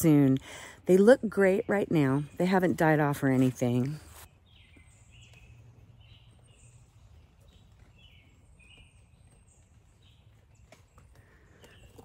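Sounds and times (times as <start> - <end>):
small bird chirping: 4.2 - 12.0.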